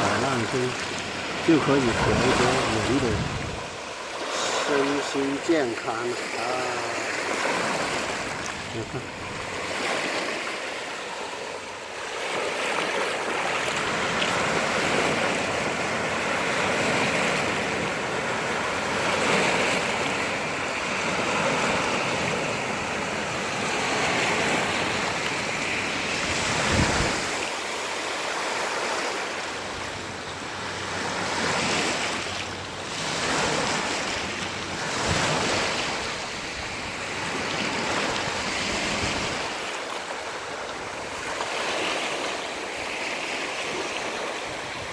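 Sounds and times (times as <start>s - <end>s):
wind on microphone: 0.0s - 3.8s, 24.0s - 27.5s
low wind buffet: 0.0s - 4.8s, 21.8s - 27.5s
sea waves breaking on shore: 0.0s - 44.9s.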